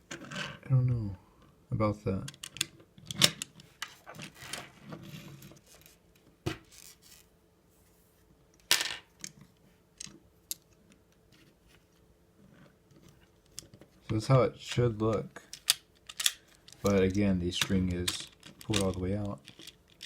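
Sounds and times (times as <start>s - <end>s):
plastic parts rubbing and rattling: 2.4s - 6.0s, 9.2s - 20.0s.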